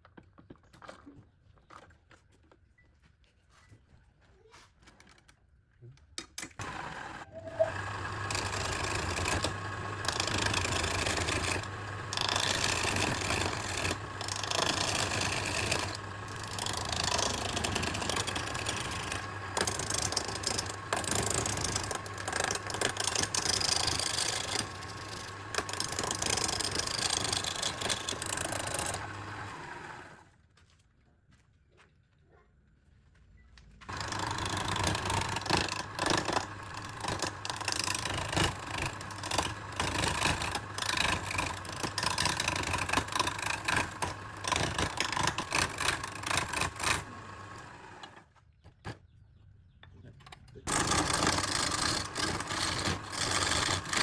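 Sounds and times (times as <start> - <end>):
blade rasping into wood: 6.6 - 30.2, 33.9 - 48.1, 50.7 - 54.0
machine motor hum: 6.6 - 30.3, 33.9 - 48.2, 50.7 - 54.0.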